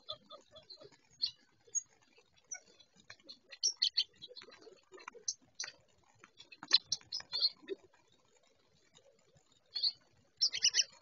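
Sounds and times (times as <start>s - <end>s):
birds chipping and ticking: 0.0s - 11.0s.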